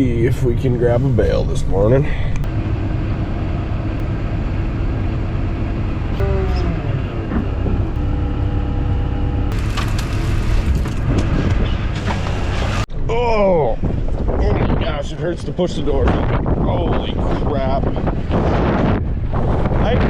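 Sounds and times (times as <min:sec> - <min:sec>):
tractor engine running: 0:01.2 - 0:12.9.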